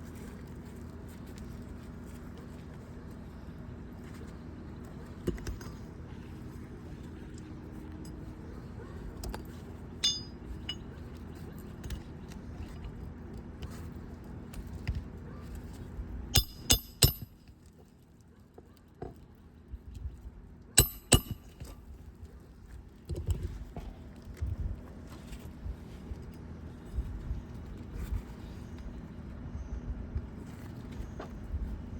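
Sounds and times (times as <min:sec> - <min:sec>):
hammer striking roofing nails: 0:20.8 - 0:21.7.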